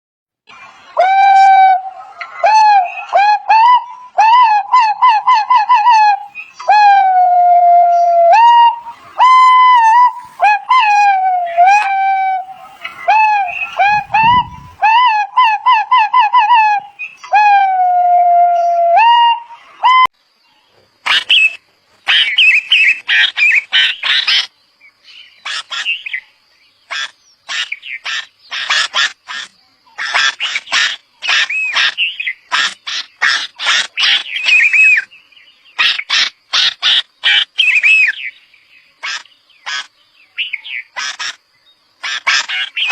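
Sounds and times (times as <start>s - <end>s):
bird chirping: 0.5s - 17.8s, 18.5s - 42.9s
warbling siren-like tone: 1.0s - 15.6s.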